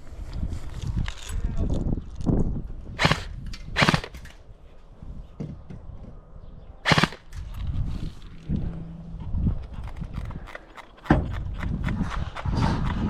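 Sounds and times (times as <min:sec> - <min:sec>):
airsoft gun shots: 0:03.0 - 0:04.3, 0:06.8 - 0:07.5
rustling of movement: 0:06.9 - 0:13.0.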